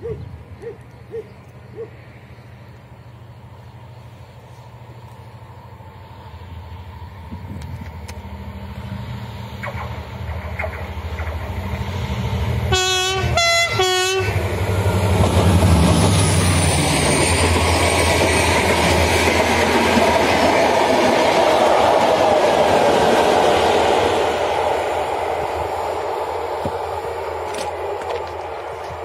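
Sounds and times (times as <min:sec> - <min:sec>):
locomotive engine humming: 0:00.0 - 0:29.0
train cars rattling over rails: 0:04.8 - 0:29.0
train horn blasts: 0:12.6 - 0:14.8.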